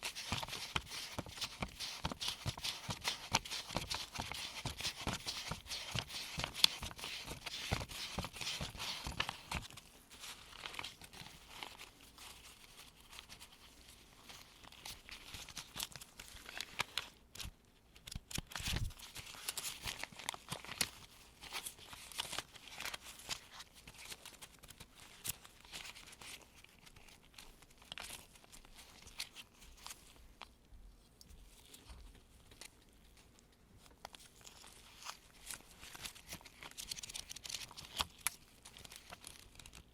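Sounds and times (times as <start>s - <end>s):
paper bills rustling: 0.0s - 13.6s, 18.1s - 29.8s.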